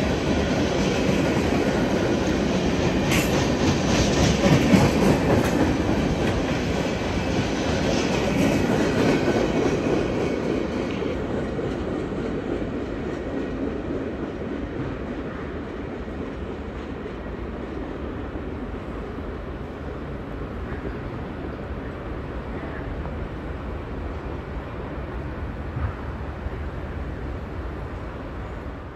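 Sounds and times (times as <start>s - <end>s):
train wheels clicking over rail joints: 0.1s - 15.1s.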